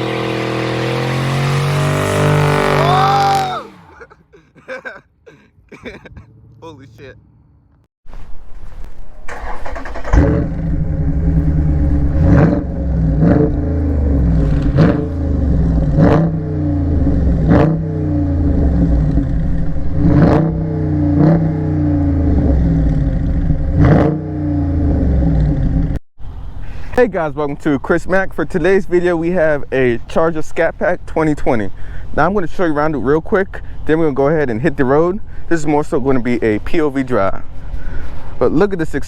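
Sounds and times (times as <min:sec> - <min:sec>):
car engine revving hard: 0:00.0 - 0:04.0, 0:09.7 - 0:25.5.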